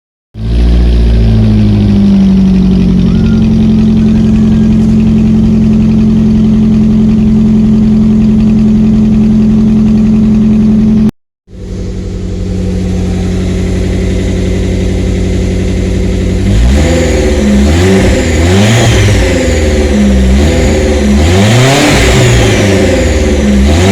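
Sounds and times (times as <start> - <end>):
car engine with loud exhaust: 0.4 - 23.9.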